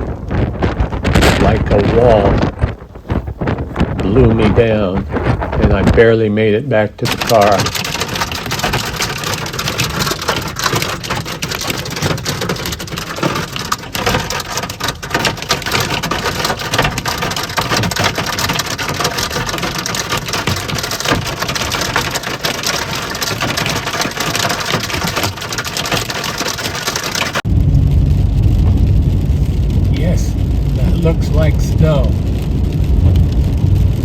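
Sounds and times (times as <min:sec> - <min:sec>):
hail and heavy rain: 0:00.0 - 0:06.1, 0:07.0 - 0:34.0
low rumble: 0:00.0 - 0:07.2, 0:27.4 - 0:34.0.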